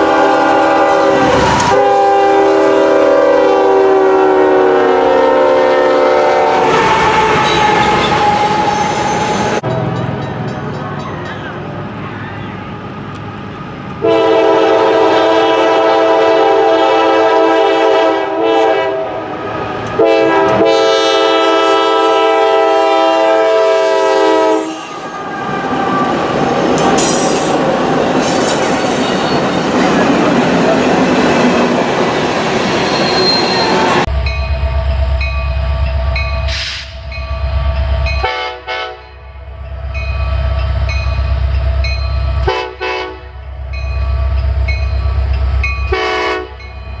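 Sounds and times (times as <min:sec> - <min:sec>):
locomotive air horn blasts: 0:00.0 - 0:08.6, 0:14.0 - 0:19.3, 0:20.0 - 0:25.0, 0:38.2 - 0:39.2, 0:42.4 - 0:43.4, 0:45.9 - 0:46.6
passing train rumbling: 0:00.0 - 0:47.0.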